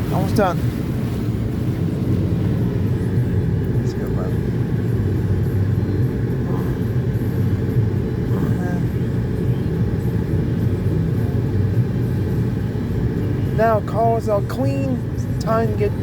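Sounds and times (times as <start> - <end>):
car wash machinery rumble: 0.0 - 16.0.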